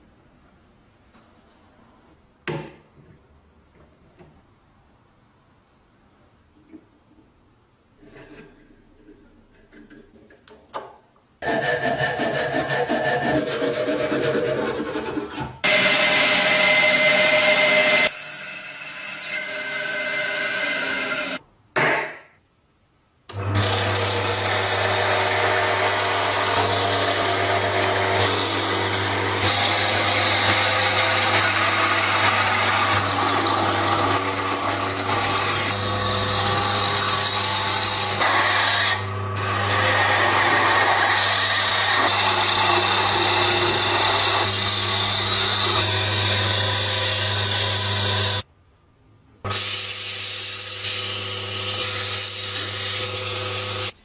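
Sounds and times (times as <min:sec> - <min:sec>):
harsh abrasive grinding: 0:15.6 - 0:21.4, 0:23.4 - 0:48.4.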